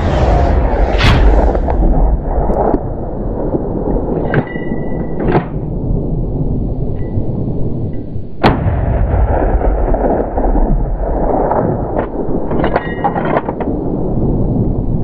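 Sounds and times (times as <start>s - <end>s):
sharp crack: 0.0s - 3.6s
low rushing noise: 0.0s - 4.1s.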